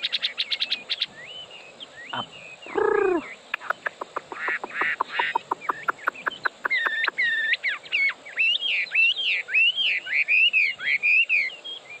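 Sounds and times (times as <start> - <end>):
bird singing whistled phrases: 5.2 - 12.0.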